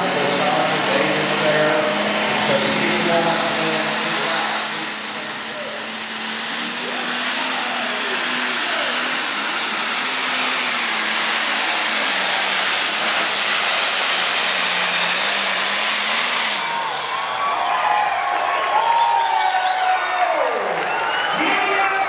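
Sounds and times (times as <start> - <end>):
high turbo hiss: 0.0 - 17.4
tractor diesel engine roaring: 0.0 - 19.0.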